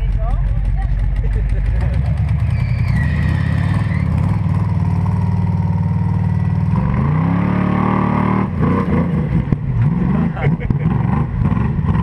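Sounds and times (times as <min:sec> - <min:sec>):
buggy engine running and revving: 0:00.0 - 0:12.0.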